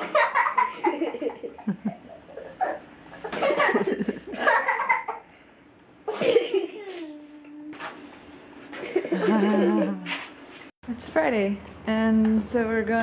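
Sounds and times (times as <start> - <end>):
young children laughing: 0.0 - 5.3, 6.0 - 7.2, 8.7 - 10.1.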